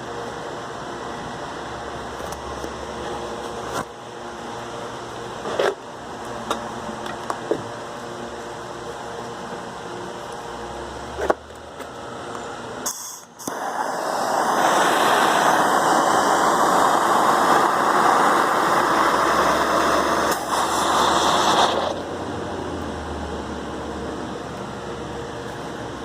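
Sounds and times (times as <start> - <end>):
loud hissing rush: 12.8 - 24.5.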